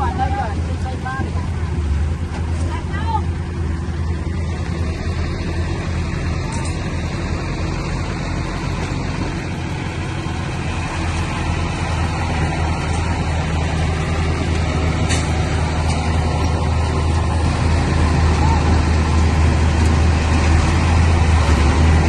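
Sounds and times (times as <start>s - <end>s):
heavy diesel engine humming: 0.0s - 22.0s.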